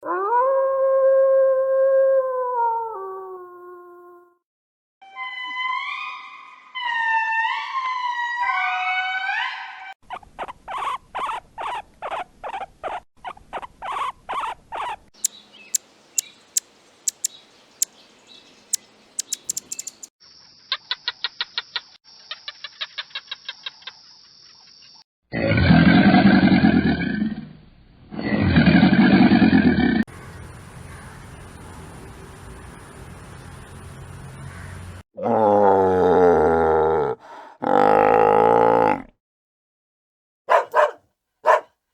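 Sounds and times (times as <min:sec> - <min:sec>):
bird chirping: 0:15.2 - 0:20.1
sharp high tweets: 0:15.2 - 0:20.1
rapid trills: 0:16.2 - 0:18.0, 0:18.7 - 0:20.1.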